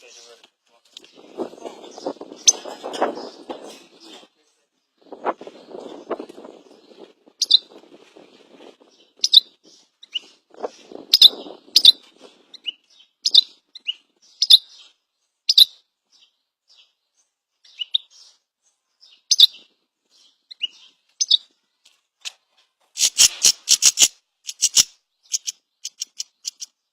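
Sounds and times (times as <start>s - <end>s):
bird chirping high calls: 6.0s - 7.8s, 8.8s - 17.0s, 17.6s - 18.4s, 19.0s - 21.5s, 23.0s - 26.9s
bird rattling clicks: 23.1s - 26.7s.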